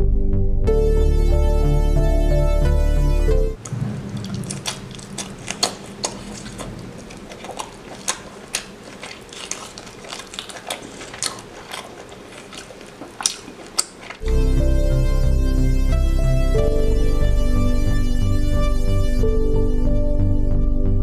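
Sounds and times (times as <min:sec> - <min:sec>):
faint low hum: 0:03.6 - 0:19.2.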